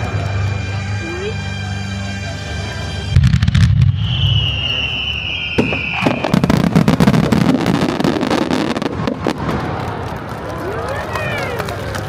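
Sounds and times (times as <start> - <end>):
fireworks crackling: 2.9 - 12.0
firework shell whistling: 3.1 - 9.4
firework bursts: 3.1 - 10.4.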